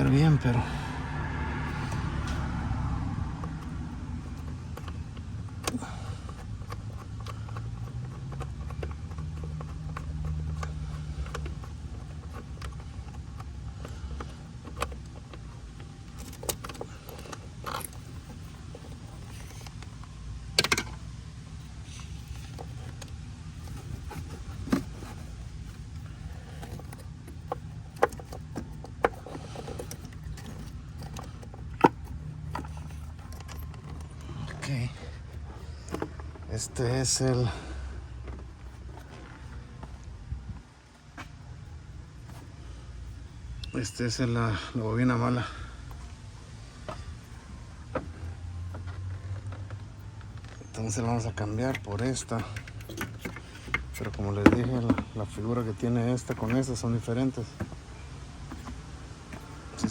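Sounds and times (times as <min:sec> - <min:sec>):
steady low hum: 0:00.0 - 0:59.9
hand tools clicking and knocking: 0:03.4 - 0:37.2, 0:50.3 - 0:59.9.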